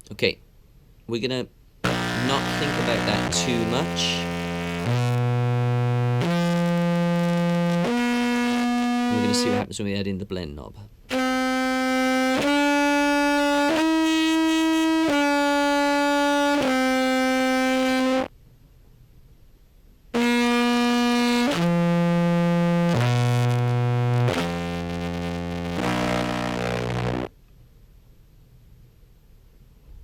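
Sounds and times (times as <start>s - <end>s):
distorted bass clarinet notes: 1.8s - 9.7s, 11.1s - 18.3s, 20.2s - 27.3s.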